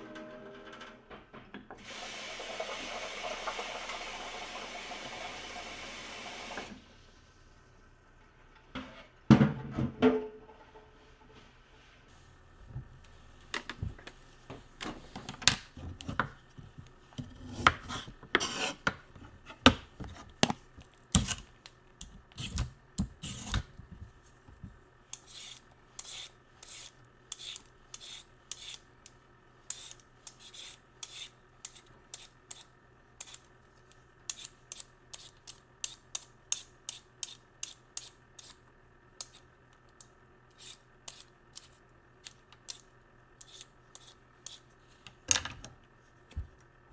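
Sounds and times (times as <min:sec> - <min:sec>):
knocks and scrapes on a board: 0:15.8 - 0:20.6
sharp cutting strokes: 0:25.2 - 0:28.8, 0:29.7 - 0:33.5, 0:34.3 - 0:38.6, 0:40.5 - 0:41.8, 0:43.4 - 0:44.7.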